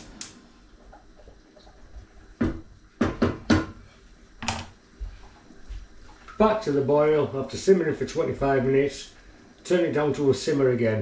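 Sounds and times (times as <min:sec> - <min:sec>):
pot knocking on stove: 0:02.4 - 0:03.8.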